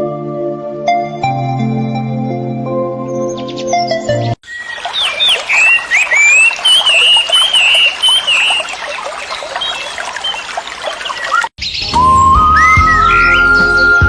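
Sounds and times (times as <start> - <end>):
bird repeated rising notes: 3.1 - 14.0
chorus of bird chirps: 3.1 - 14.0.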